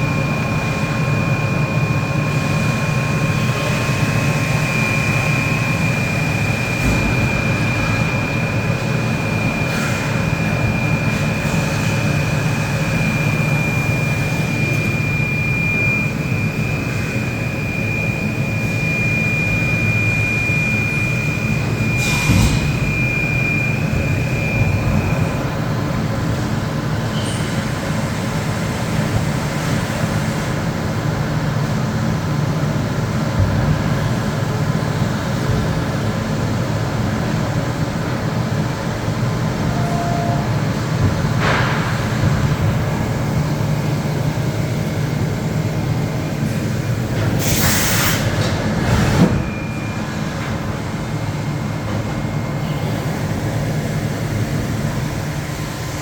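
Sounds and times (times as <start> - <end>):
machining centre humming: 0.0 - 56.0
machine clunk: 22.0 - 23.4
short hissing blast: 47.4 - 48.3.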